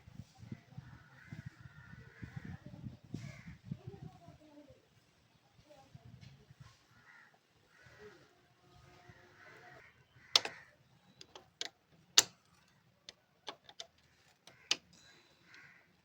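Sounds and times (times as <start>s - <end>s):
hand tools clicking and tapping: 10.4s - 10.6s, 11.2s - 15.6s.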